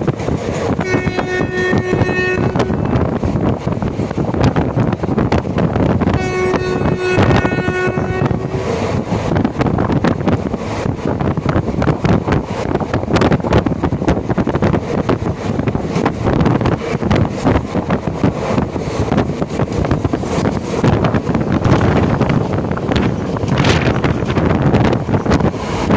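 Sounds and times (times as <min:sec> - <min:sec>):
train wheels clattering on track: 0:00.0 - 0:07.6, 0:08.2 - 0:25.9
wind buffeting microphone: 0:00.0 - 0:25.9
train horn chord: 0:00.8 - 0:03.1, 0:06.1 - 0:08.8.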